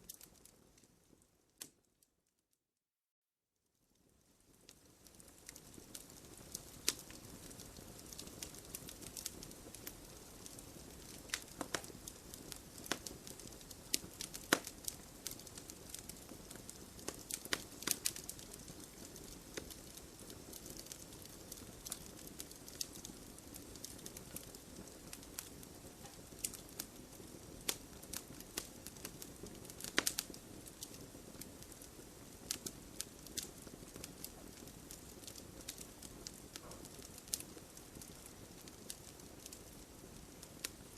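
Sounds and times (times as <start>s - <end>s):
wood fire crackling: 0.0s - 1.9s, 3.9s - 40.9s
soft rush of flame: 4.1s - 40.9s
sharp pops from burning logs: 4.6s - 40.9s.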